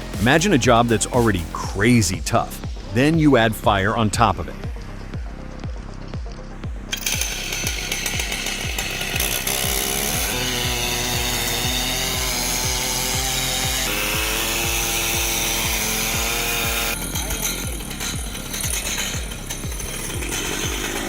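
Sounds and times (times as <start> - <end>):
music with low beat: 0.0 - 21.0
chainsaw engine revving: 6.9 - 21.0.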